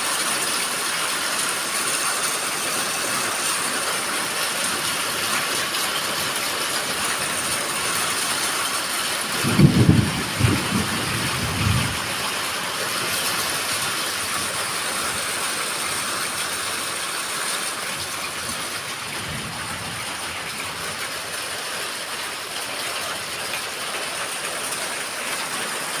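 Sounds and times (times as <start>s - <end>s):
heavy rain pouring: 0.0s - 26.0s
low rumble of thunder: 9.3s - 12.3s.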